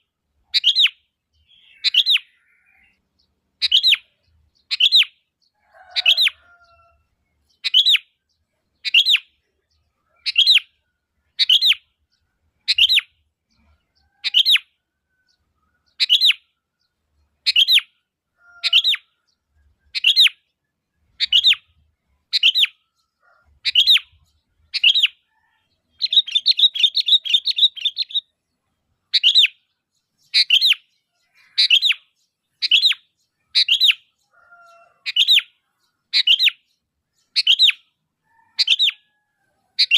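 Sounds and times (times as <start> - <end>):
bird calling: 0.0 - 3.0, 21.2 - 28.4, 29.1 - 36.6, 37.3 - 39.9
bird chattering: 0.5 - 3.0, 7.5 - 8.0, 10.0 - 11.9, 12.6 - 14.7, 17.4 - 18.0, 21.1 - 28.4, 29.0 - 37.9.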